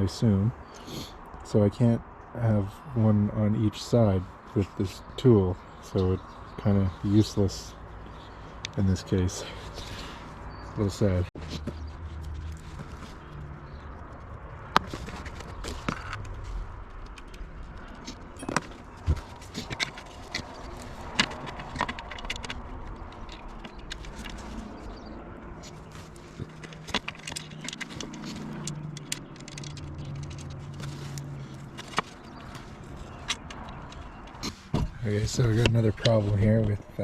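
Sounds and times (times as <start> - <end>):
metal hardware clinking: 18.0 - 24.9, 25.6 - 34.4.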